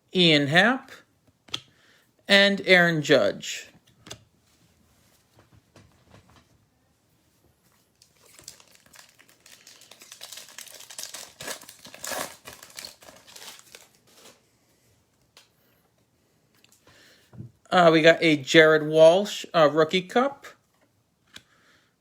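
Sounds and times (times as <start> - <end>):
wrapper crinkling and tearing: 8.0 - 14.4.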